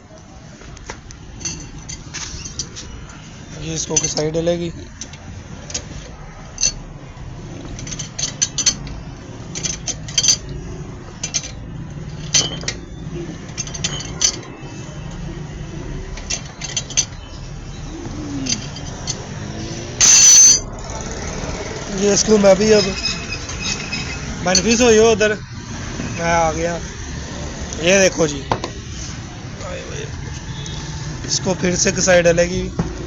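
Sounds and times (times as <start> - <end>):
metal tools clinking: 1.2 - 26.8.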